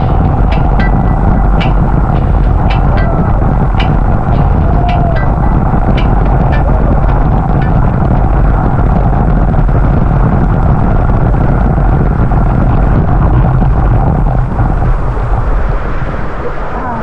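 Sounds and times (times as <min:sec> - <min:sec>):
waterfall roaring: 0:00.0 - 0:10.6.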